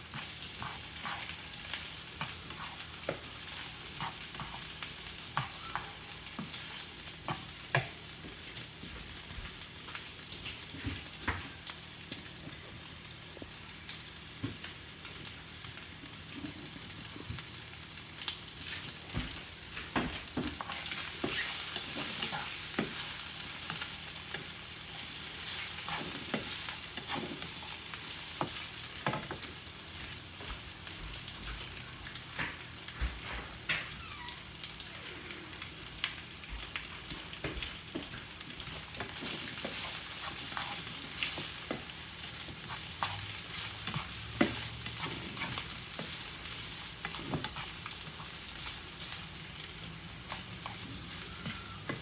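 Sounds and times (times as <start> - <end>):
food sizzling in a frying pan: 0.0 - 52.0
utensil scraping a pan: 39.0 - 48.8.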